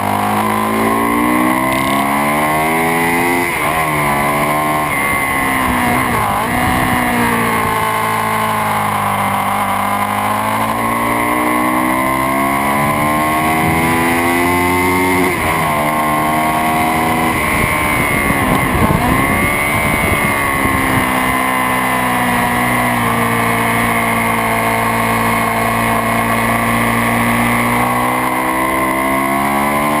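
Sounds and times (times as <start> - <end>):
motorcycle engine revving hard: 0.0 - 30.0.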